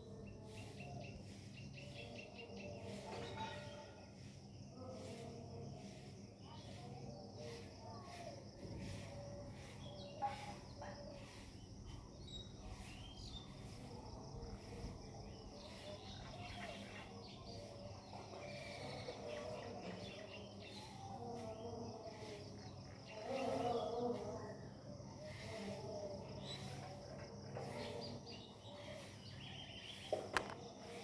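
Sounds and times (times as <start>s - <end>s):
insects chirping: 0.0s - 31.0s
bird calls: 26.4s - 31.0s.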